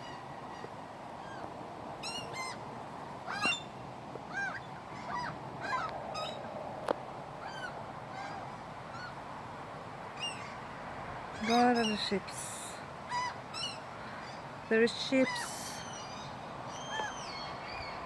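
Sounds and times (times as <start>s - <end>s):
gulls calling: 11.4s - 18.0s.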